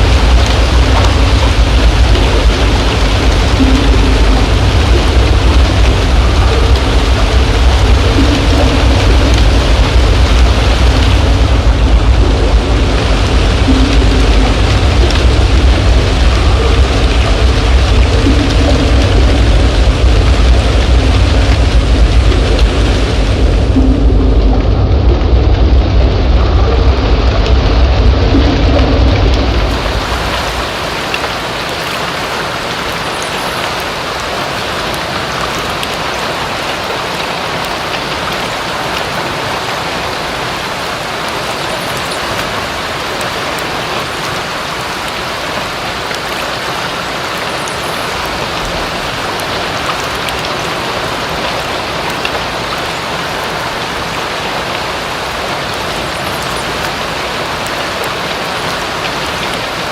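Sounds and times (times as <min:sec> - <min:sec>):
low rumble: 0:00.0 - 0:31.7
steady rain falling: 0:00.0 - 0:59.9.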